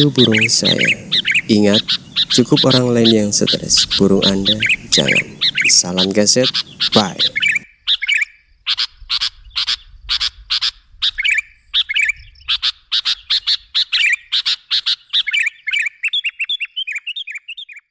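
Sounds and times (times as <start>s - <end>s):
bird chattering calls: 0.0s - 7.6s
bird warbling notes: 0.0s - 7.6s.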